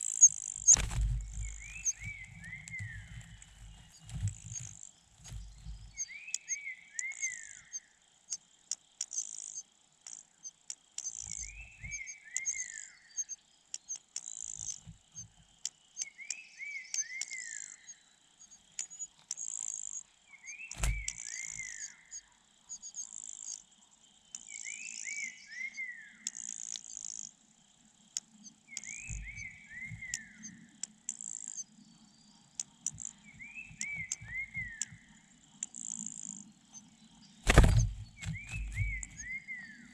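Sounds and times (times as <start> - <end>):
sharp knock: 37.5 - 38.9
low thumps: 37.5 - 39.2.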